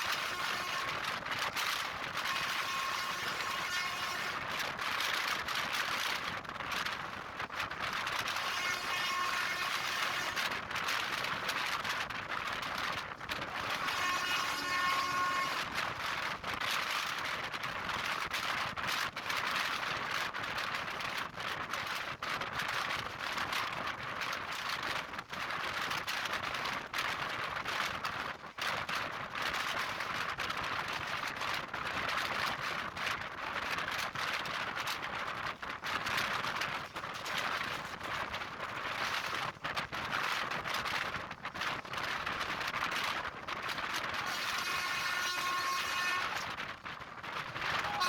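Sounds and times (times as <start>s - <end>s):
train running at speed: 0.0s - 19.1s, 43.4s - 48.0s.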